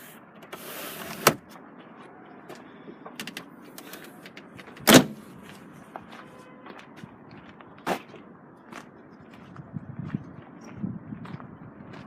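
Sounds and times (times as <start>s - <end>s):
luggage cover thud: 4.8s - 5.2s.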